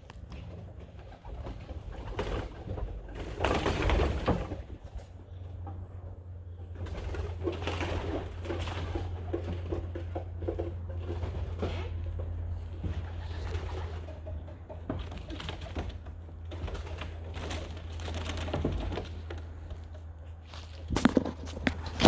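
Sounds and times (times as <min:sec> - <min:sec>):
loud rustling: 0:06.8 - 0:22.0
pigeons cooing: 0:11.2 - 0:19.2.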